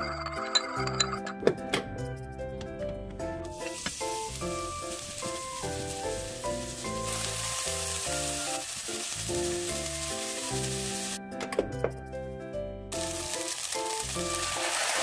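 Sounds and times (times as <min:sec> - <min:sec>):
onions sizzling in oil: 0:03.4 - 0:11.2, 0:12.9 - 0:15.0.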